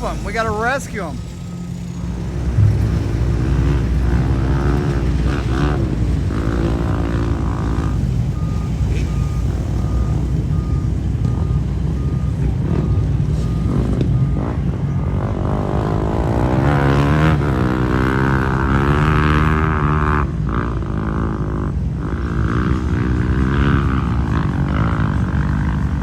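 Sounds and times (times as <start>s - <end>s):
vehicle reversing alarm beeping: 0.0s - 20.1s
dirt bike engines revving: 0.0s - 26.0s.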